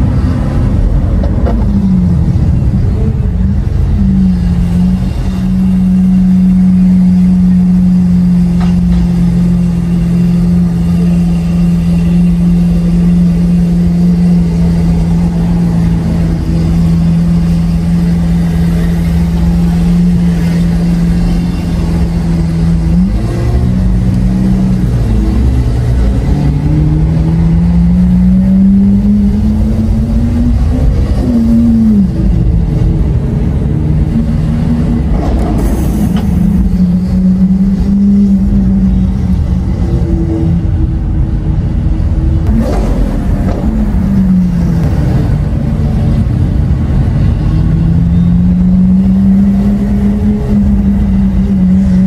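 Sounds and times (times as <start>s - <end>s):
sports car engine revving: 0.0s - 52.0s.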